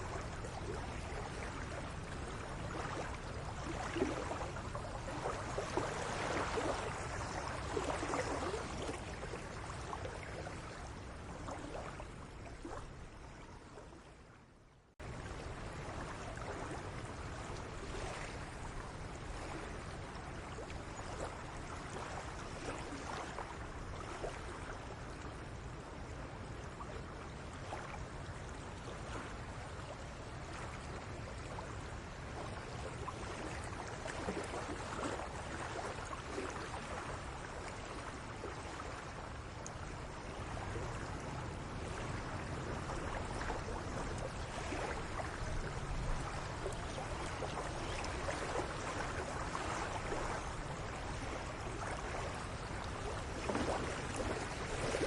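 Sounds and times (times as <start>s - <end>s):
outdoor background noise: 0.0s - 55.0s.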